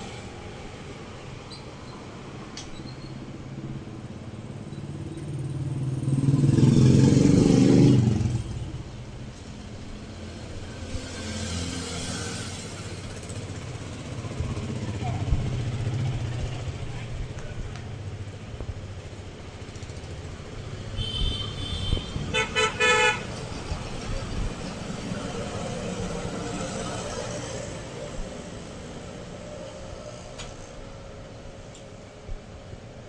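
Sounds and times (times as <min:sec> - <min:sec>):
rumble of passing vehicles: 0:00.0 - 0:33.0
loud car horn blasts: 0:21.0 - 0:23.3.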